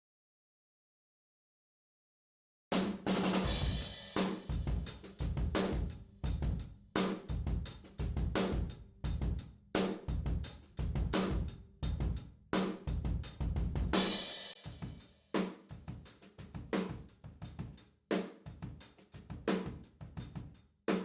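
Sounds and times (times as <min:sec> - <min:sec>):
drum kit groove: 0:02.7 - 0:21.0.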